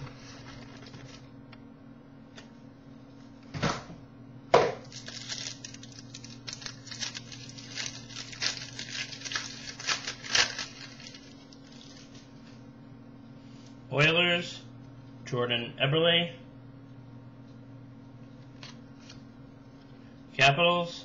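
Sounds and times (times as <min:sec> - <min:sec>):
steady low hum: 0:00.0 - 0:21.0
wrapper crackling: 0:04.8 - 0:12.6
cards rustling and clicking: 0:04.9 - 0:12.2.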